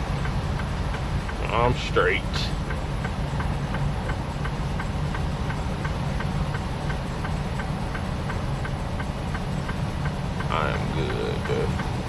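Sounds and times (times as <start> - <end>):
light even ticking: 0.0 - 12.0
truck engine and road drone: 0.0 - 12.0.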